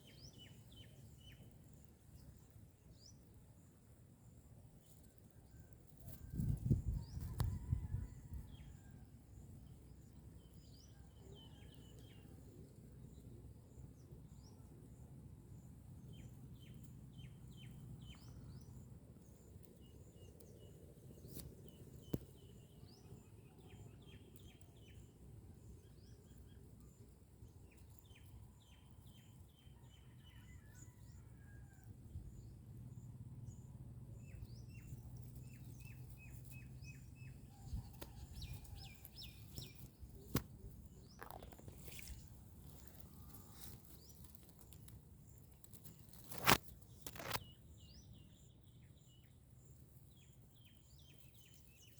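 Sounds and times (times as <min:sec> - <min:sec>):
sharp click: 0:45.8 - 0:47.5.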